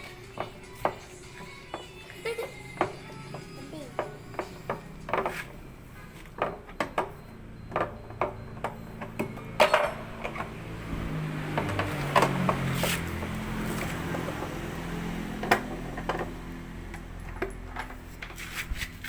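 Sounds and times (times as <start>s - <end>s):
tools and metal parts clinking: 6.2s - 10.5s, 16.9s - 19.0s.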